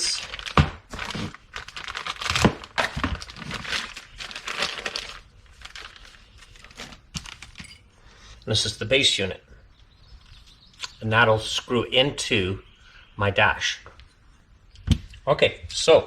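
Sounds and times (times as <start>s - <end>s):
packaging crinkling and tearing: 0.0s - 7.8s.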